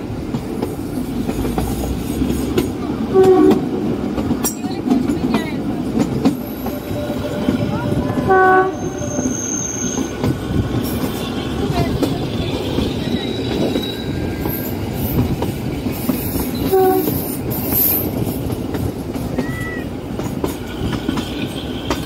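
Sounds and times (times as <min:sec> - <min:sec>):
train wheels clattering on rail: 0:00.0 - 0:22.0
locomotive horn blasts: 0:03.1 - 0:03.7, 0:06.6 - 0:09.6, 0:16.7 - 0:17.2
high wheel squeal: 0:06.4 - 0:11.5, 0:12.9 - 0:14.9.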